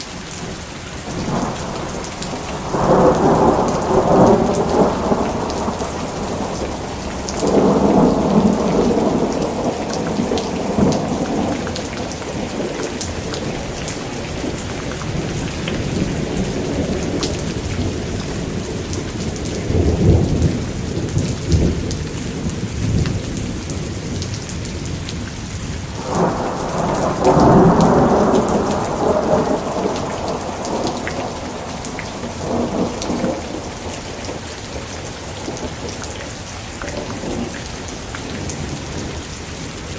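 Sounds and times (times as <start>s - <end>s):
steady rain falling: 0.0s - 39.9s
rolls of thunder: 1.1s - 18.6s, 25.9s - 34.4s.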